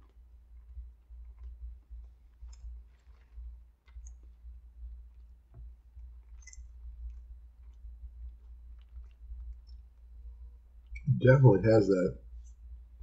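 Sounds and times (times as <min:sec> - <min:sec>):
person chewing food: 0:00.0 - 0:10.1.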